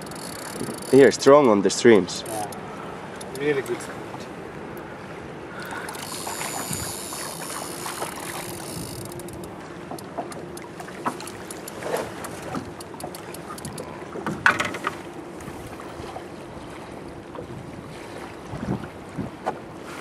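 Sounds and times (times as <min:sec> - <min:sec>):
fast-flowing river water: 0:00.0 - 0:20.0
short clicks: 0:02.2 - 0:03.8, 0:05.6 - 0:13.9.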